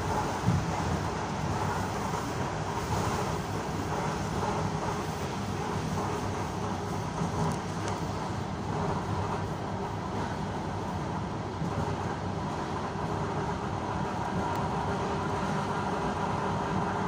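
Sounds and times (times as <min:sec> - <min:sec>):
train wheel-on-rail rumble: 0:00.0 - 0:17.0.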